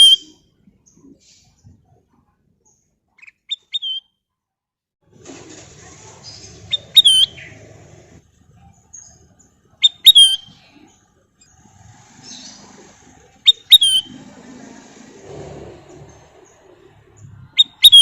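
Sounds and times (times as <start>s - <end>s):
bird whistling: 0.0s - 0.4s, 3.2s - 4.2s, 6.7s - 7.6s, 9.8s - 10.6s, 13.4s - 14.2s, 17.5s - 18.0s.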